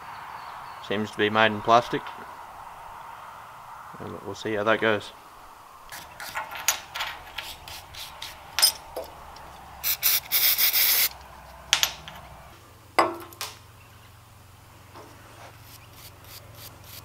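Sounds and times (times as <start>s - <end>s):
wire brush scrubbing metal: 7.2s - 8.9s, 9.8s - 11.2s, 15.3s - 17.0s
aerosol spray hiss: 7.4s - 8.4s, 9.8s - 11.2s.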